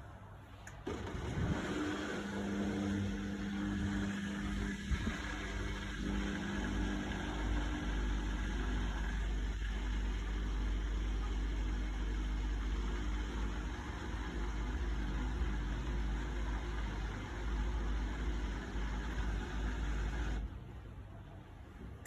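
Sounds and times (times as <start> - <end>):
washing machine rumbling: 0.8 - 20.6.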